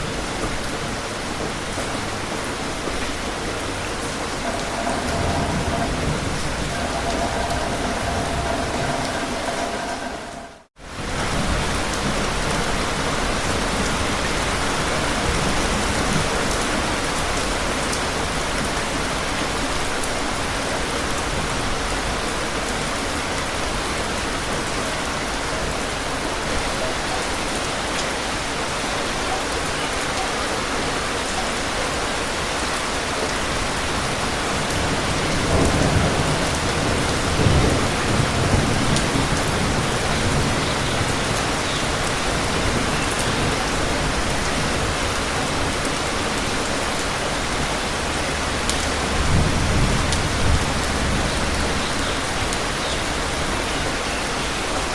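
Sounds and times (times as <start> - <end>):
steady rain falling: 0.0 - 54.9
low rumble of thunder: 3.2 - 13.0, 34.6 - 45.8, 48.4 - 52.5.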